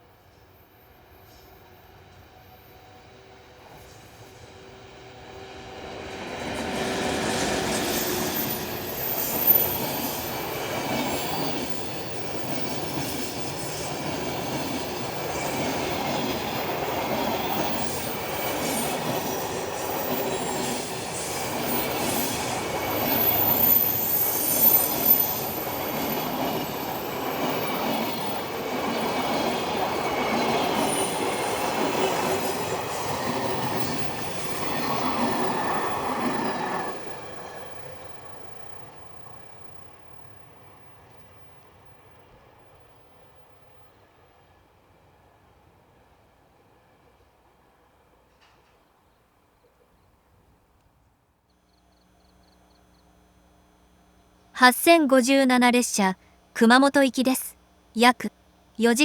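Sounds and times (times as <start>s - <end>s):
freight train rumbling past: 1.0s - 48.1s.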